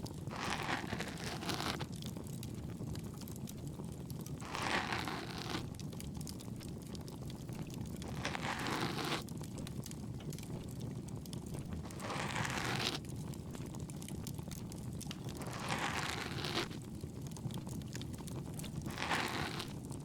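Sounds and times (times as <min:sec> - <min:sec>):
bonfire crackle: 0:00.0 - 0:00.3, 0:01.7 - 0:04.5, 0:05.6 - 0:08.3, 0:08.9 - 0:12.0, 0:12.7 - 0:15.9, 0:16.5 - 0:20.0
scratchy rustling strokes: 0:00.3 - 0:01.9, 0:04.4 - 0:05.8, 0:08.0 - 0:09.3, 0:11.8 - 0:13.1, 0:15.0 - 0:16.9, 0:18.6 - 0:20.0.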